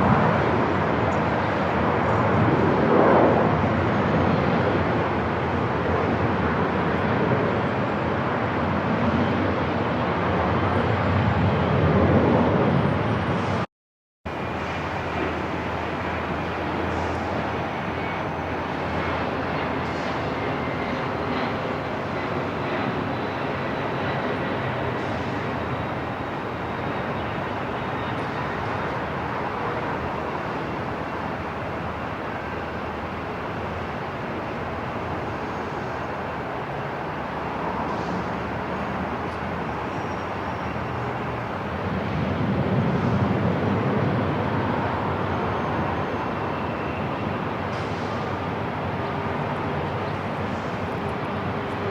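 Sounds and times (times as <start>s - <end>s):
airport rumble: 14.3s - 51.9s.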